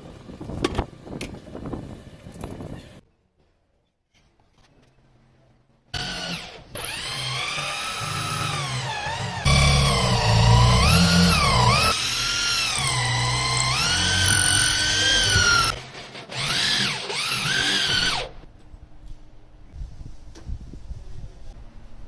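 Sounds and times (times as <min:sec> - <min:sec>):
power drill whining: 0:06.0 - 0:18.4.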